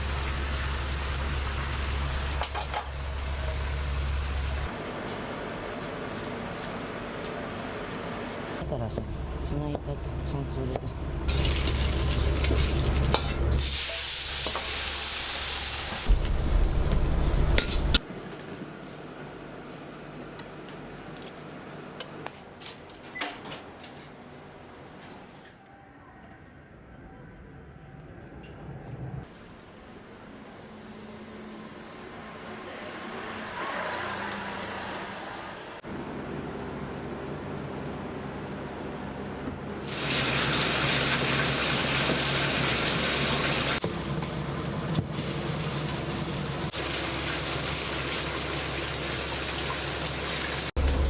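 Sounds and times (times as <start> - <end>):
food sizzling in hot oil: 11.0 - 18.0, 39.9 - 51.0
road vehicle passing: 30.7 - 35.8.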